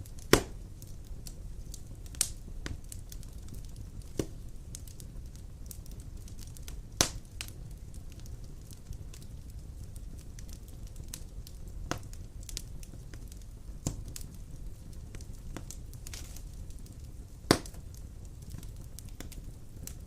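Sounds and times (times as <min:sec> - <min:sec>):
fire flames rumbling: 0:00.0 - 0:20.0
wood fire crackles and pops: 0:00.0 - 0:20.0.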